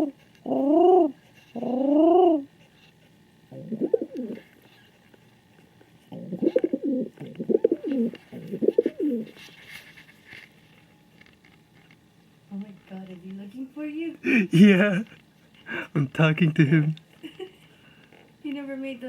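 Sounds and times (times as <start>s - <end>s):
pigeon cooing: 0.0s - 2.5s, 3.5s - 4.5s, 6.1s - 9.4s.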